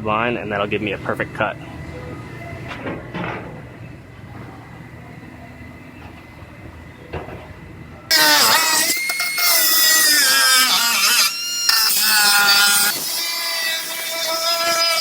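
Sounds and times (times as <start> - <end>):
low shop rumble: 0.0 - 9.4
power tool whining: 8.1 - 15.0.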